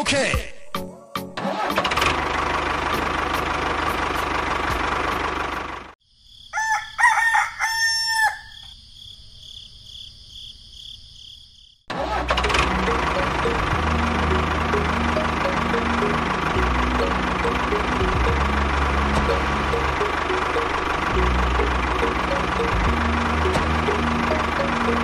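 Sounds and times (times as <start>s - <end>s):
small engine running: 1.4s - 6.0s, 11.9s - 25.0s.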